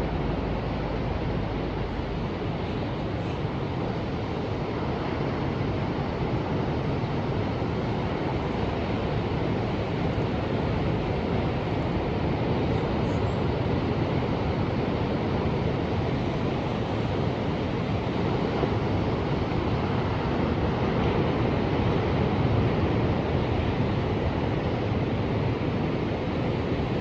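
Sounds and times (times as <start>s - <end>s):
ocean surf washing: 0.0s - 27.0s.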